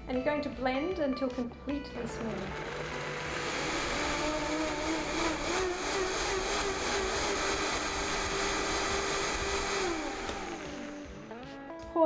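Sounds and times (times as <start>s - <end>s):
blender motor running: 1.9s - 11.5s.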